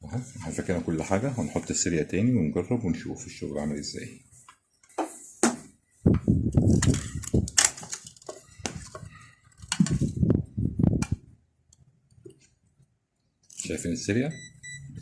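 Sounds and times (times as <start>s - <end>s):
clicks and knocks of metal and plastic: 6.6s - 10.1s.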